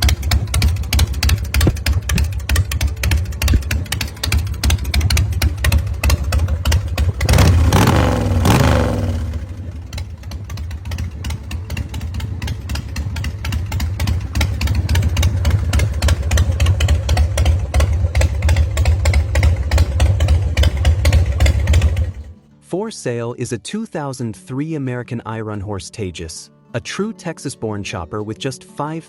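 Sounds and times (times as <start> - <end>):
motorcycle engine revving and idling: 0.0 - 22.4.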